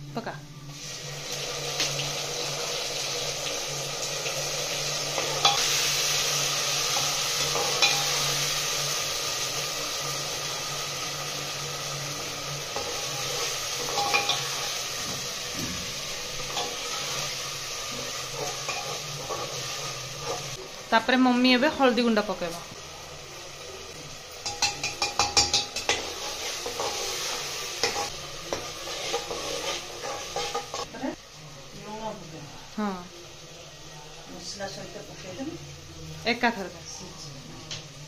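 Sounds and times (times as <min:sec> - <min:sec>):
spice paste sizzling in oil: 0:00.7 - 0:38.0
ladle scraping a pot: 0:24.8 - 0:30.9.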